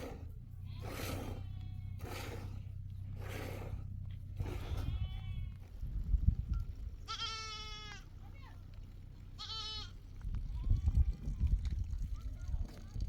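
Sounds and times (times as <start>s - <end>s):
low steady rumble: 0.0s - 13.0s
sheep bleating: 0.6s - 2.7s, 4.4s - 5.7s, 7.0s - 8.1s, 9.4s - 11.2s.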